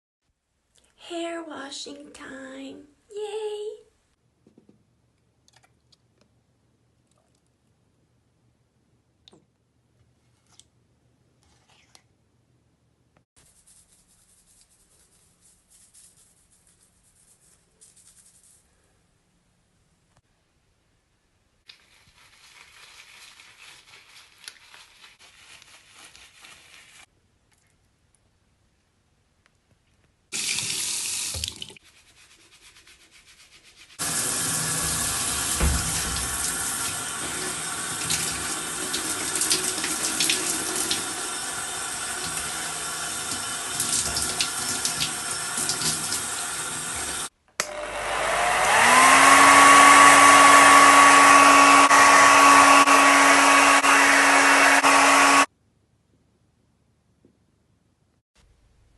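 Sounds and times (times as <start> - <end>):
shower water spraying: 21.7 - 27.1, 30.4 - 47.3.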